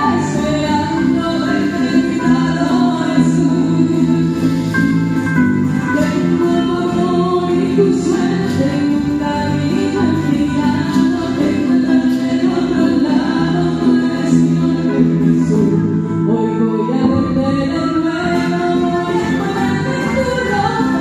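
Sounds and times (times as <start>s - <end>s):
slow choral music: 5.9s - 21.0s.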